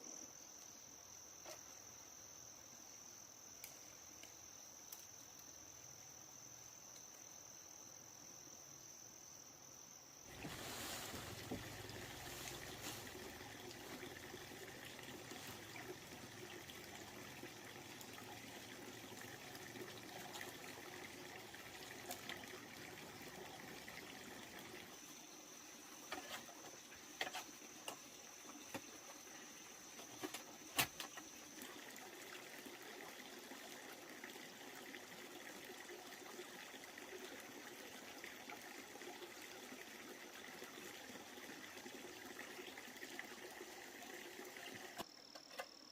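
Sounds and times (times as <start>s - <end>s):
cricket trilling: 0.0s - 45.9s
water trickling: 10.3s - 45.0s.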